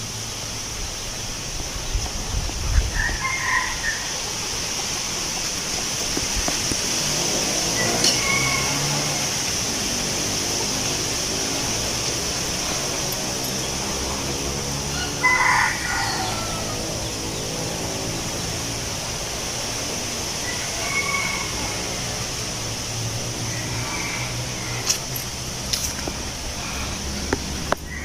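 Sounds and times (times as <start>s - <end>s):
high-pitched hiss: 0.0s - 28.0s
wind in leaves: 0.0s - 28.0s
rooster crowing: 2.9s - 4.5s, 7.2s - 10.8s, 14.7s - 18.0s, 20.3s - 25.1s, 27.8s - 28.0s.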